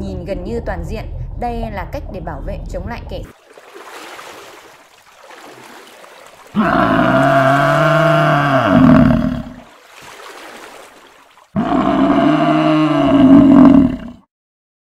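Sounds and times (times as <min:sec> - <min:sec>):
cow mooing: 0:06.6 - 0:09.6, 0:11.6 - 0:14.2.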